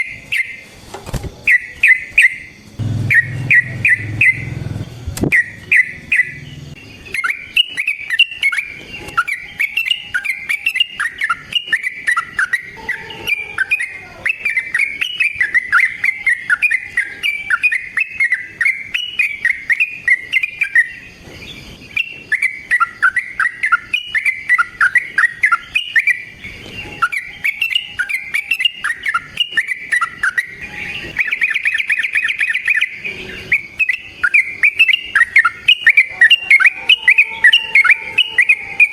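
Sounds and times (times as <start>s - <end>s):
bird singing bubbly chirps: 1.4s - 38.9s.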